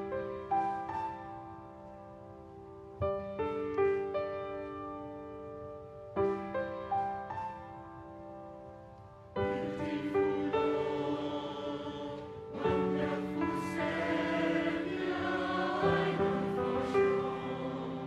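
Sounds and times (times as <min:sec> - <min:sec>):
piano accompaniment: 0:00.0 - 0:18.0
choir singing: 0:09.4 - 0:18.0.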